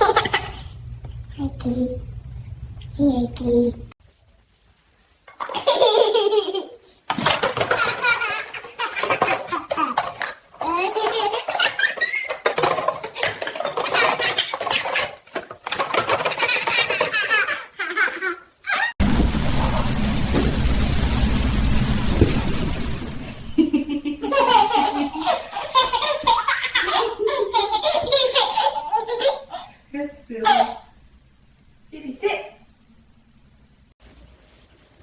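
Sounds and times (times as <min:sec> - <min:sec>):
baby laughing: 0:00.0 - 0:00.7, 0:05.4 - 0:15.2, 0:16.0 - 0:19.0, 0:24.2 - 0:29.8, 0:30.4 - 0:30.9
steady low rumble: 0:00.6 - 0:03.9, 0:19.0 - 0:24.2.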